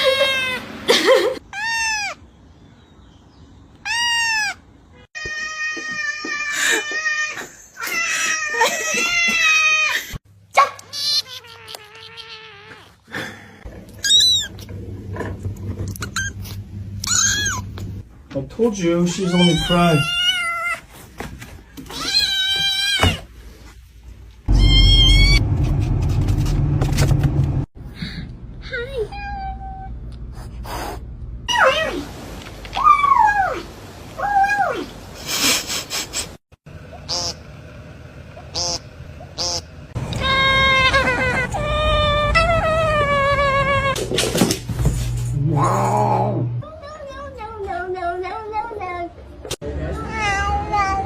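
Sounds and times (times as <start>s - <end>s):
cat meowing: 11.1s - 13.0s, 19.1s - 20.8s, 24.5s - 25.4s
loud deep rumble: 24.5s - 27.7s.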